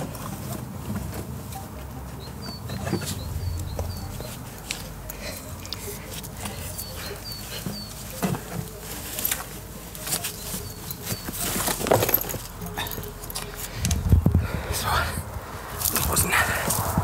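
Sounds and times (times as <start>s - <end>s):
short high bird chirps: 2.4s - 4.9s
rustling: 2.7s - 14.0s.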